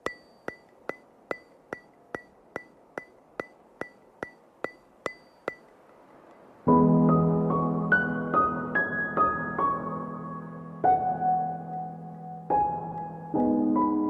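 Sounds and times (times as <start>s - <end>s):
percussive ticks with high ring: 0.0s - 6.5s.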